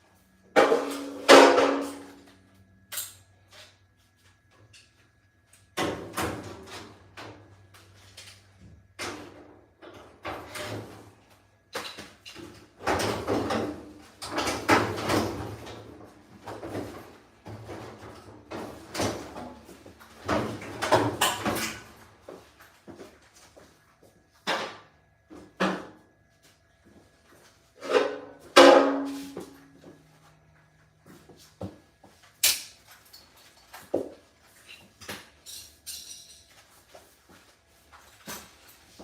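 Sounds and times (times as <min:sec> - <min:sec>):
objects knocking and clattering: 0:11.7 - 0:22.0.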